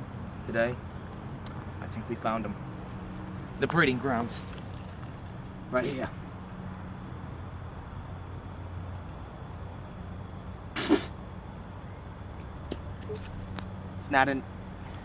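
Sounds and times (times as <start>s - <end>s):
person short vocal burst: 10.8s - 11.1s.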